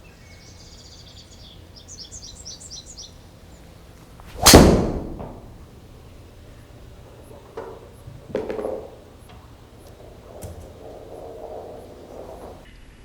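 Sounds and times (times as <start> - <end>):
high bird chirps: 0.2 - 3.2
golf club striking ball: 4.2 - 12.6.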